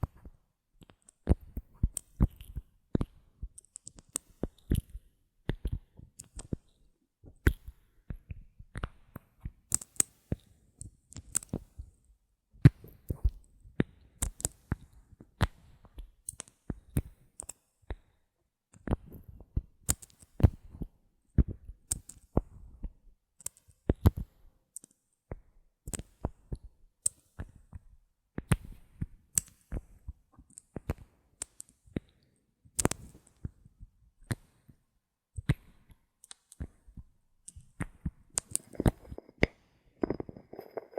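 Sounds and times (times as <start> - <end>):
bottle caps clicking: 38.4 - 40.9.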